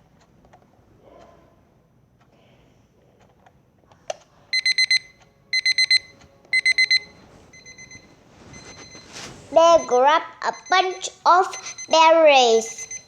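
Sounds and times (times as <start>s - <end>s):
electronic alarm beeping: 4.5s - 13.0s.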